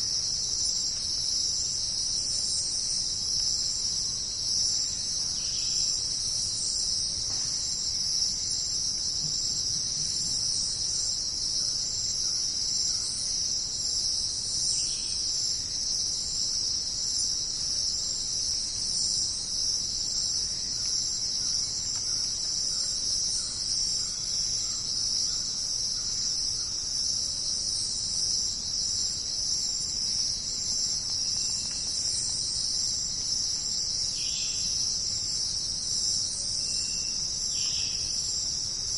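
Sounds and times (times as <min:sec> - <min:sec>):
insects chorus: 0:00.0 - 0:38.9.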